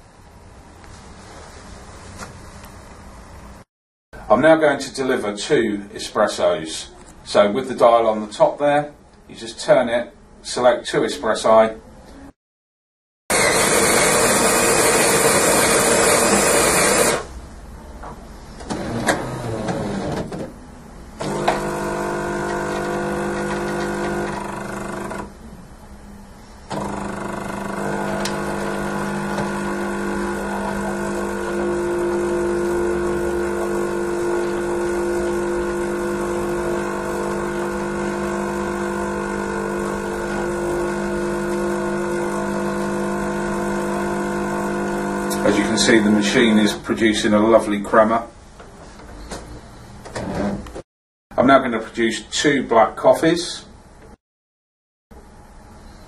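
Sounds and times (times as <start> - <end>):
coffee machine grinding: 13.3 - 17.3, 21.2 - 25.4, 26.7 - 46.2
pump humming: 21.2 - 25.4, 26.7 - 45.9.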